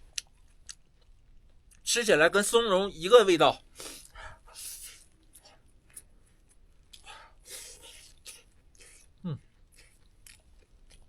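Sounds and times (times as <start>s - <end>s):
person chewing and slurping: 6.9s - 11.0s.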